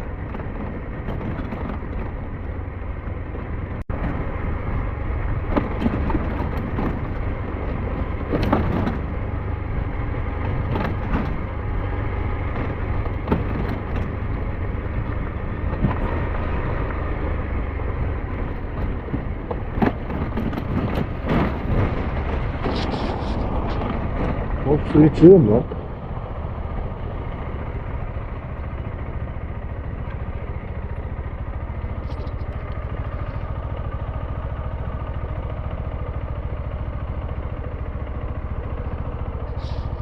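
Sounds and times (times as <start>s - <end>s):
motorcycle engine and wind rumble: 0.0s - 40.0s
knocks and clatters: 0.2s - 2.6s, 5.4s - 17.0s, 18.1s - 35.8s.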